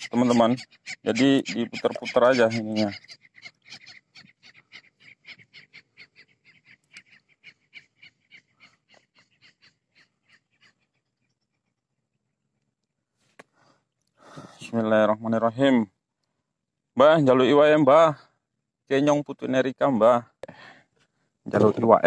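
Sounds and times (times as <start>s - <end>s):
bird calling in rapid notes: 0.0s - 11.8s.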